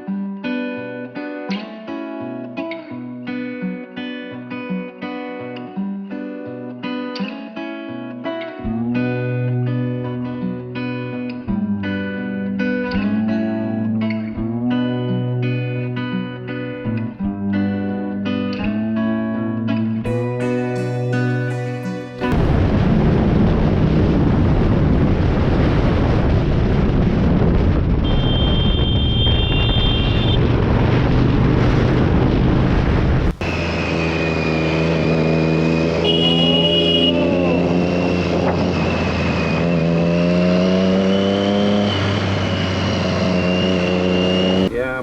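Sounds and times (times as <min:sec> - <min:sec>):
motorcycle engine: 0:22.1 - 0:45.0
wind noise on microphone: 0:22.3 - 0:34.3, 0:37.8 - 0:39.7
short high-pitched beeps: 0:28.0 - 0:30.4.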